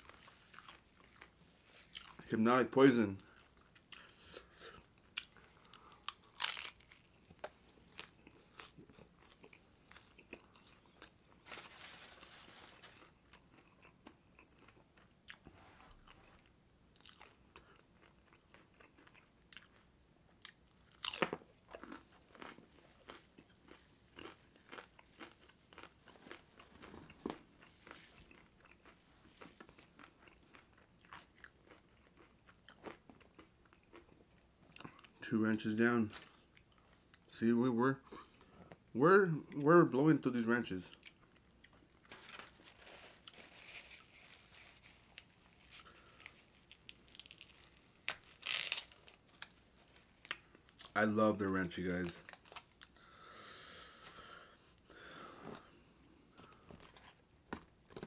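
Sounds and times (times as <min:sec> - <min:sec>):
crunchy food chewing: 0:00.0 - 0:02.2, 0:03.2 - 0:35.2, 0:40.9 - 0:51.0.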